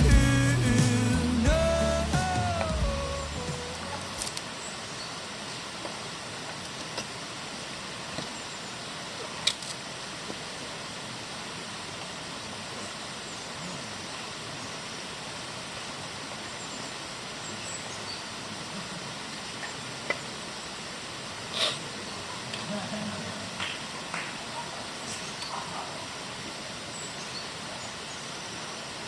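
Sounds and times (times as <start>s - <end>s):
rushing outdoor background noise: 0.0s - 18.7s.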